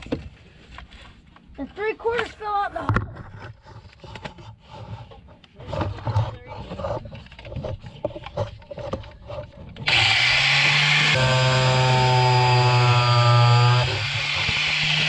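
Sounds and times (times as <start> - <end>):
knocks and scrapes of handling: 0.0 - 10.0
power tool humming: 9.8 - 15.0.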